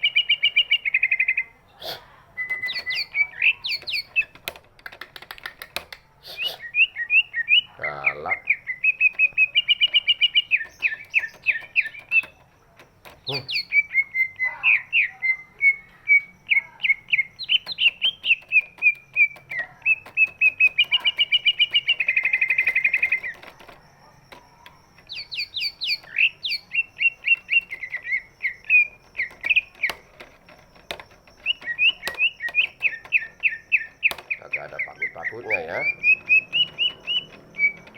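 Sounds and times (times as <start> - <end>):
bird singing quick chirps: 0.0 - 4.4, 13.2 - 23.5, 24.4 - 30.2, 30.8 - 37.9.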